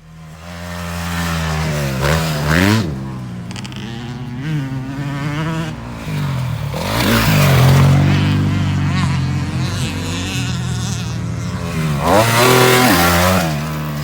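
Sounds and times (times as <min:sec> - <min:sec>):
motocross bike engine revving: 0:00.0 - 0:14.0.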